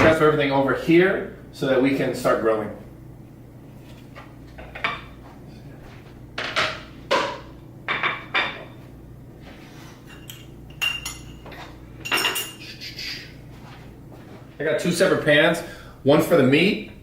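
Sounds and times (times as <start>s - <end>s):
dishes and pans clinking: 6.4s - 8.7s, 10.0s - 12.6s.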